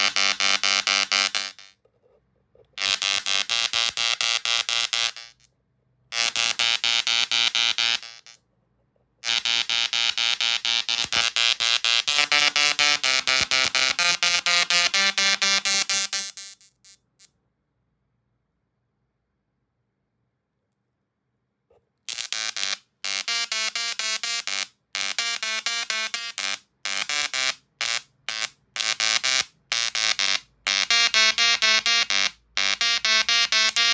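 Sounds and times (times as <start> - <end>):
tesla coil arcs buzzing: 0.0 - 1.7, 2.8 - 5.4, 6.1 - 8.4, 9.2 - 16.3, 22.1 - 33.9.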